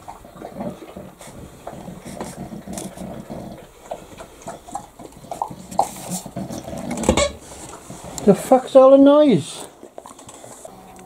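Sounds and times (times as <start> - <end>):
dog growling: 0.2 - 7.1.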